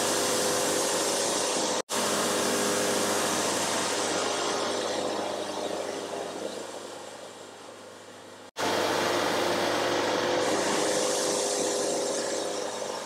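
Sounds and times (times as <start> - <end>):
diesel engine drone: 0.0 - 13.0
bandsaw hissing through wood: 9.6 - 13.0.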